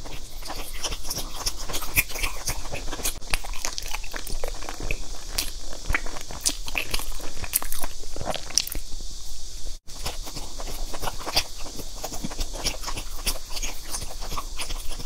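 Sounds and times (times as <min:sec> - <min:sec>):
mouth clicks: 0:00.0 - 0:08.9
person chewing crunchy pastry: 0:00.0 - 0:09.0, 0:09.8 - 0:15.0.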